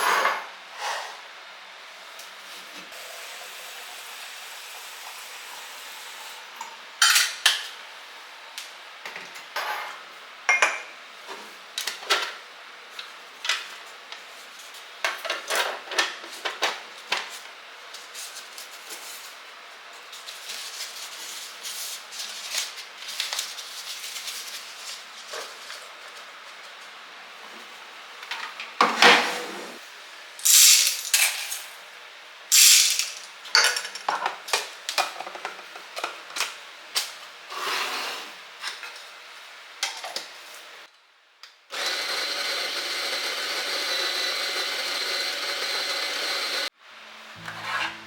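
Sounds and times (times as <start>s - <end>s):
kitchenware clattering: 9.6s - 10.9s, 32.5s - 34.4s.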